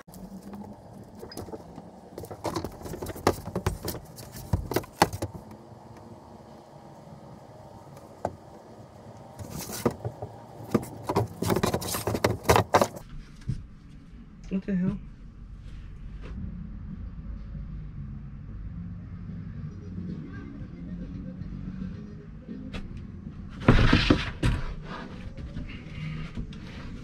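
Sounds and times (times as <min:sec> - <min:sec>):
wooden boards and tools clattering: 0:00.4 - 0:05.5, 0:09.2 - 0:13.0, 0:23.6 - 0:24.8.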